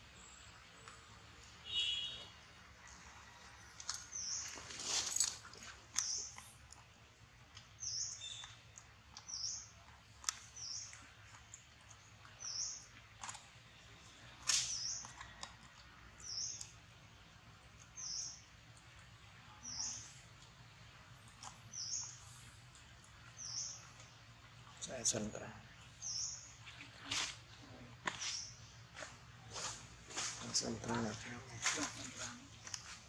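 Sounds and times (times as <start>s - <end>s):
small bird chirping: 7.6s - 13.8s, 14.5s - 15.4s, 16.2s - 16.8s, 19.5s - 20.2s, 21.3s - 22.5s, 23.2s - 24.2s, 24.8s - 28.8s.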